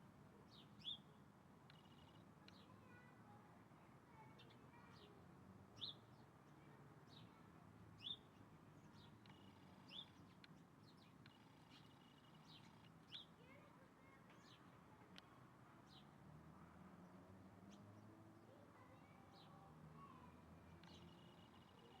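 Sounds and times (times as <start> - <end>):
birds chirping: 8.0 - 16.2, 17.5 - 22.0.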